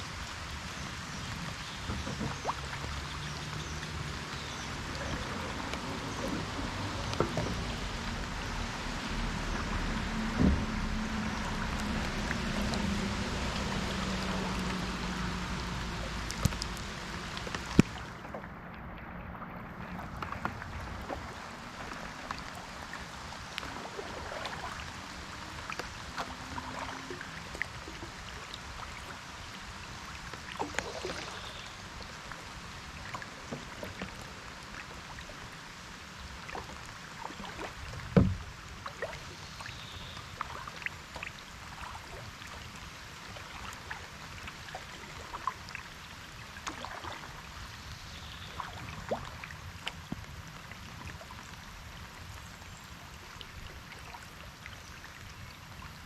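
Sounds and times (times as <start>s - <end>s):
paddle splashing water: 0.0s - 56.0s
loud thump: 10.4s - 10.8s
raindrop ticks: 16.1s - 18.0s.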